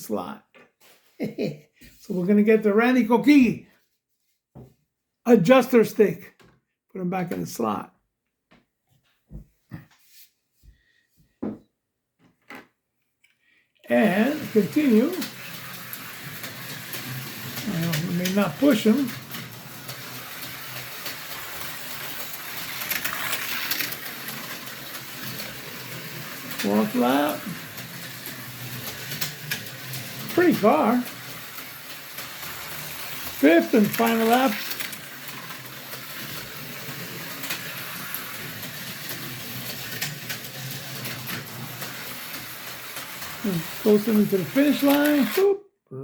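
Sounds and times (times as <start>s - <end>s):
slot car wheels clicking on rails: 13.9s - 45.5s.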